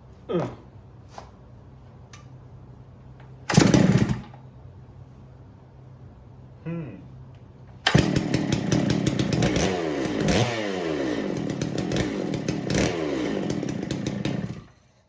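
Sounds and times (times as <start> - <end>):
chainsaw engine revving: 3.5 - 4.3, 7.8 - 14.8.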